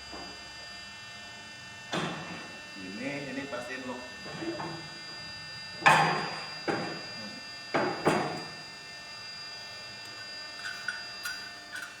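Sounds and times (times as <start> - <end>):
steady machine hum: 6.4 - 12.0.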